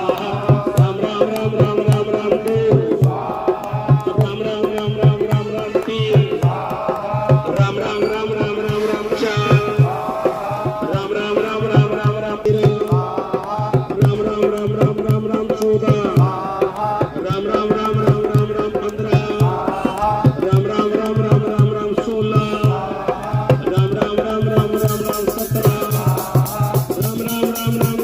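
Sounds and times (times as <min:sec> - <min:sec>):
tabla rhythm: 0:00.0 - 0:28.0
voices chanting a melody: 0:06.3 - 0:13.4
sustained drone: 0:07.8 - 0:11.8.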